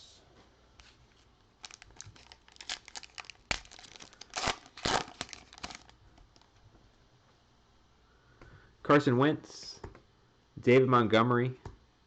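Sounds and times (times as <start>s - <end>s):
foil wrapper tearing and crinkling: 1.6s - 6.5s.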